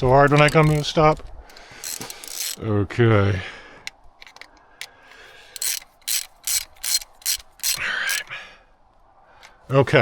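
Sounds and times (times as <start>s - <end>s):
ratchet wrench ratcheting: 0.4s - 2.6s, 5.4s - 8.2s.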